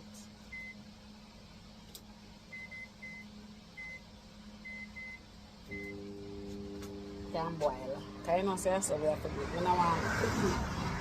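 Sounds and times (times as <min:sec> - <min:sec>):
low steady hum: 0:00.0 - 0:11.0
microwave keypad beeps: 0:02.6 - 0:03.2, 0:04.6 - 0:06.0.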